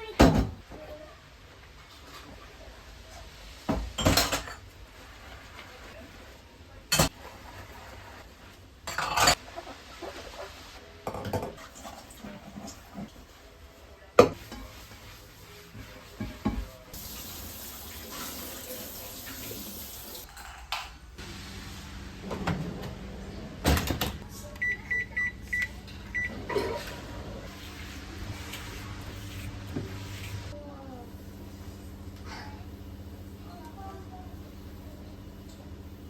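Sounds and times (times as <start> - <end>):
kitchen knocks and clatter: 3.7 - 4.7, 11.0 - 13.1, 16.2 - 16.8
running water: 17.0 - 20.3
appliance hum: 21.2 - 36.0.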